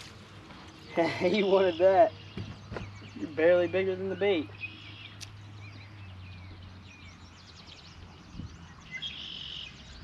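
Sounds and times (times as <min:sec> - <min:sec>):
birds chirping: 0:00.0 - 0:10.0
buzzy bird trill: 0:00.8 - 0:06.2.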